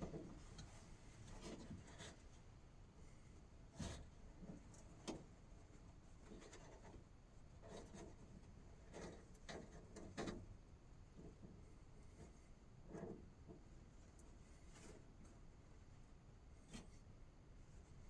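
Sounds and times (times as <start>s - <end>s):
faint rustling and handling: 11.2s - 18.0s.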